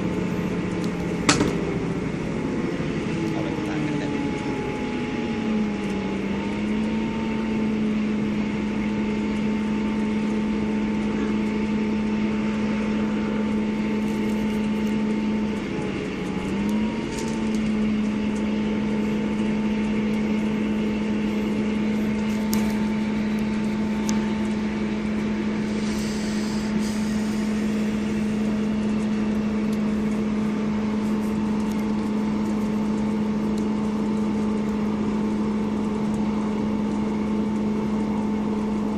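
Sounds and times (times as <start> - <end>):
train running noise: 0.0 - 6.0, 9.6 - 32.0
diesel engine drone: 0.0 - 38.9.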